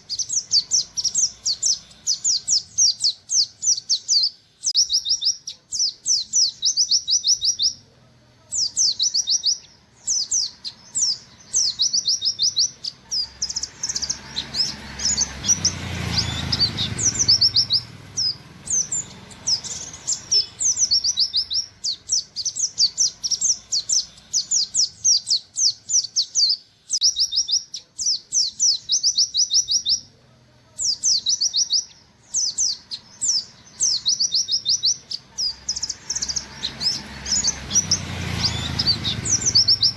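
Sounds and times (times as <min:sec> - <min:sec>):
bird singing sharp high notes: 0:08.6 - 0:30.1, 0:30.8 - 0:39.9.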